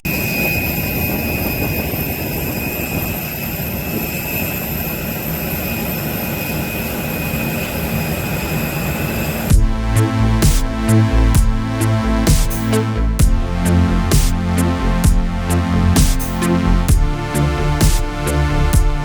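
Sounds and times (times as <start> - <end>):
music with a beat: 9.5 - 19.0.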